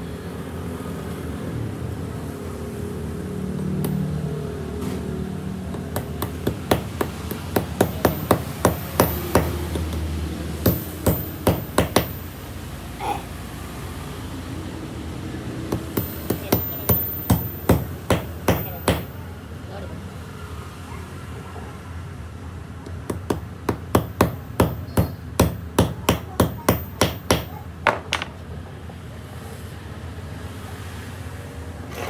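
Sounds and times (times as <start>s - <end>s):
hammer striking metal: 3.8s - 4.2s, 5.7s - 12.6s, 15.7s - 19.2s, 23.1s - 28.3s.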